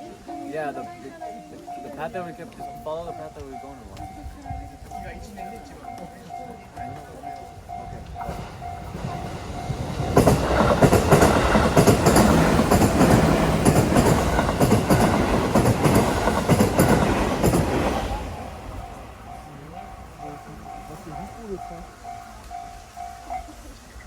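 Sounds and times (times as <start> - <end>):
train wheels knocking over rail joints: 4.9 - 22.2.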